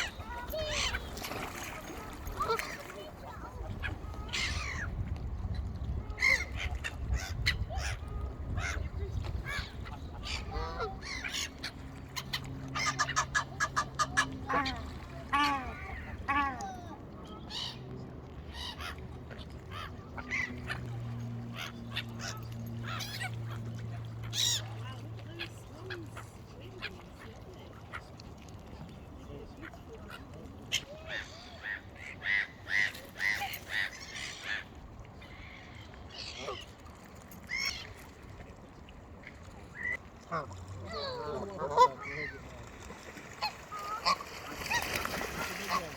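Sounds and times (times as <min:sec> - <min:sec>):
birds calling: 0:06.1 - 0:16.4.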